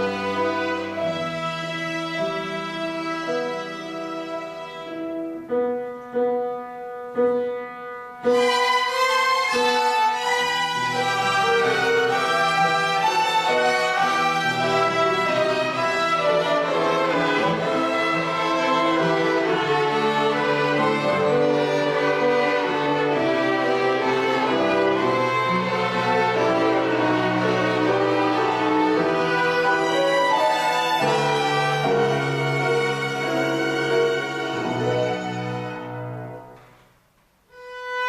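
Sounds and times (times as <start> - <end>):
violin ensemble playing: 0.0 - 5.6, 8.2 - 36.6, 37.5 - 38.0.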